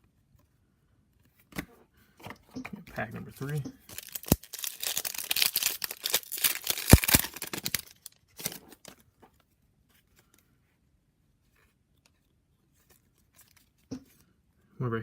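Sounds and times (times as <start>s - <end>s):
foil wrapper tearing and crinkling: 3.9s - 9.0s.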